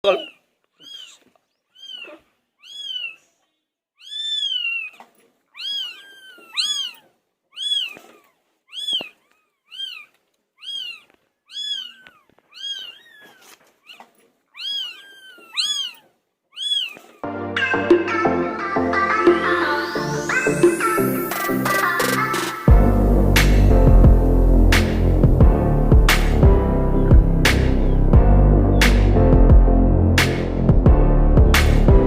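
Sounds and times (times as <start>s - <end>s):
kitten meowing: 0.1s - 1.2s, 1.8s - 3.2s, 4.0s - 5.0s, 5.6s - 17.1s.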